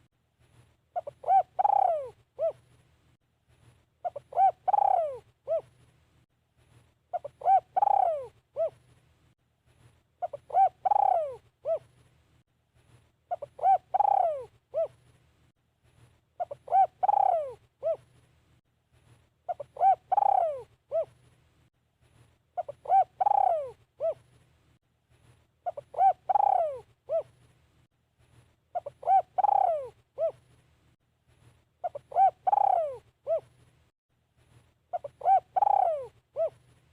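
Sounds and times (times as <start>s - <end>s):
dove cooing: 0.9s - 2.6s, 4.0s - 5.7s, 7.1s - 8.8s, 10.2s - 11.9s, 13.3s - 15.0s, 16.4s - 18.1s, 19.5s - 21.2s, 22.6s - 24.3s, 25.6s - 27.4s, 28.7s - 30.4s, 31.8s - 33.5s, 34.9s - 36.6s.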